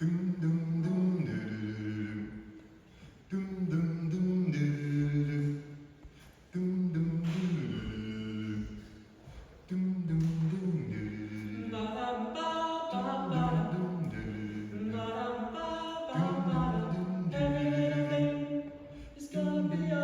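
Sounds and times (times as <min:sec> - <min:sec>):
vocal group singing in harmony: 0:00.0 - 0:20.0
singers breathing: 0:02.6 - 0:03.3, 0:18.7 - 0:19.3.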